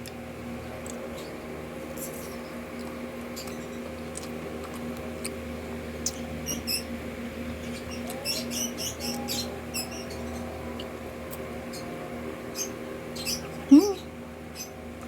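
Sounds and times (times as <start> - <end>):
chewing crispy fried food: 2.0 - 6.3.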